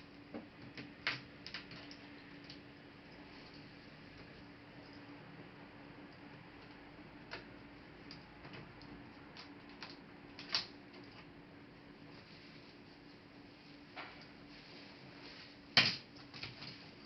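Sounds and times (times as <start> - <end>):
faint steady hum: 0.0 - 17.0
laptop parts clicking and tapping: 6.6 - 11.2.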